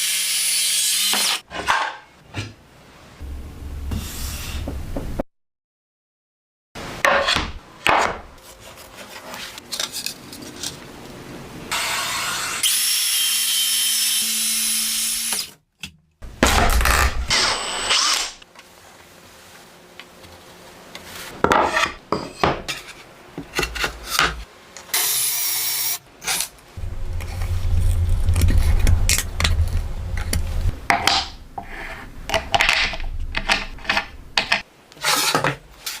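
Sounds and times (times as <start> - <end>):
circular saw cutting: 0.0 - 1.4, 11.7 - 15.5
tools knocking and scraping boards: 1.2 - 2.6, 7.0 - 8.3, 21.4 - 24.5, 30.3 - 36.0.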